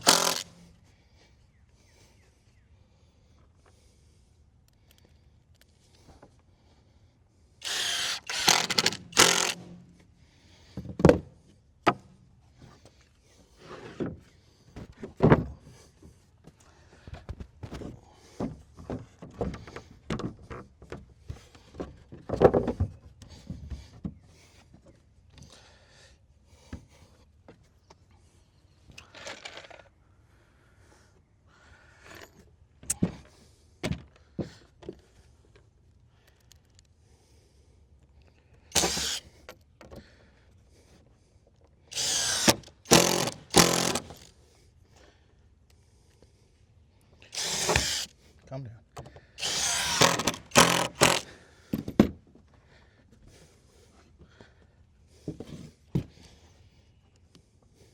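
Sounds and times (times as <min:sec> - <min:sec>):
wood rustling and scraping: 0:00.0 - 0:00.5, 0:13.6 - 0:15.6
rasping bursts: 0:00.0 - 0:00.7, 0:07.6 - 0:09.8, 0:38.7 - 0:39.4, 0:41.9 - 0:44.3, 0:47.2 - 0:48.2, 0:49.4 - 0:51.4.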